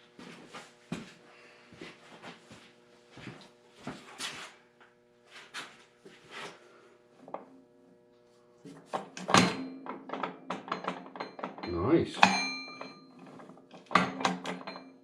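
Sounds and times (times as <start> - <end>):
clatter of metal: 8.9 - 15.0.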